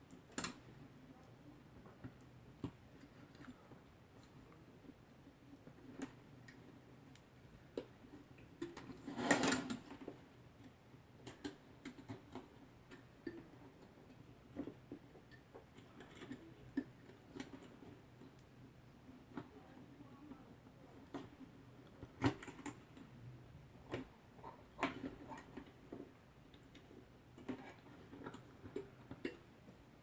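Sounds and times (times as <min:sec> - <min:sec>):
scraping rustle: 0:09.0 - 0:10.0.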